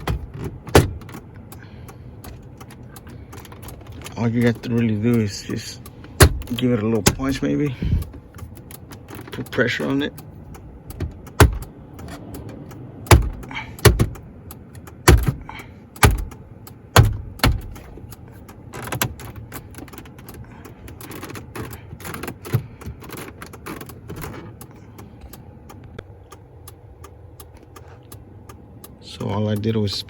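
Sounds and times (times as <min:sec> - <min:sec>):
handling noise: 0:02.2 - 0:14.2.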